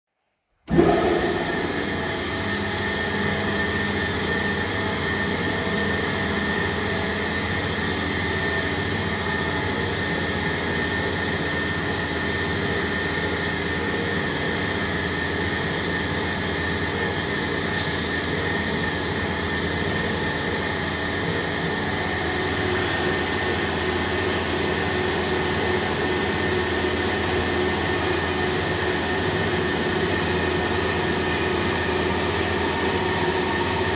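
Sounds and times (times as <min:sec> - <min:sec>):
cutting machine droning: 0:00.7 - 0:33.9.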